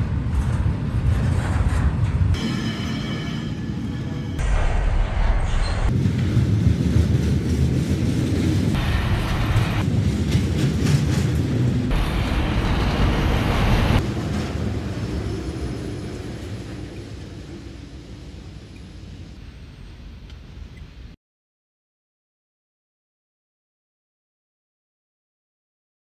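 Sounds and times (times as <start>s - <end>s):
freight train wheels rumbling: 0.0s - 20.8s.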